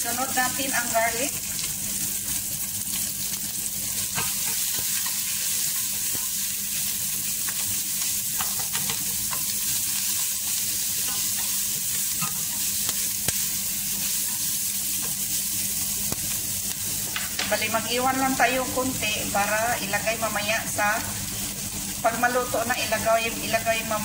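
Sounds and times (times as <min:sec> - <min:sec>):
onion sizzling in hot oil: 0:00.0 - 0:24.0
spatula knocking against pan: 0:08.4 - 0:09.5.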